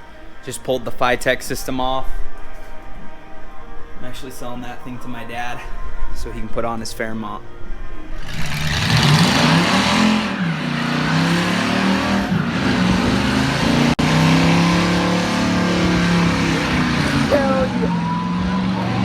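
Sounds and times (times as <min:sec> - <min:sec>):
vehicle engine revving: 0:08.2 - 0:19.0.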